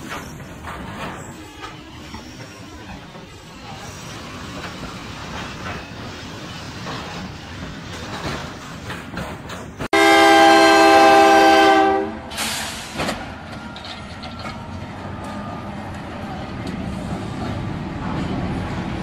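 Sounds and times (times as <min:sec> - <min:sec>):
wheels clattering on rails: 0:00.0 - 0:11.3, 0:12.3 - 0:19.0
train rumbling past: 0:00.0 - 0:19.0
locomotive air horn: 0:09.9 - 0:12.9.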